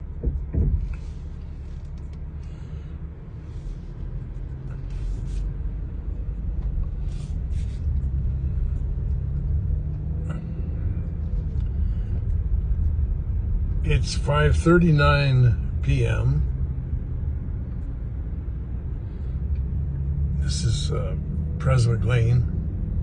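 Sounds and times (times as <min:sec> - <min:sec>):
car engine rumble: 0:00.0 - 0:23.0
thump: 0:00.2 - 0:01.0.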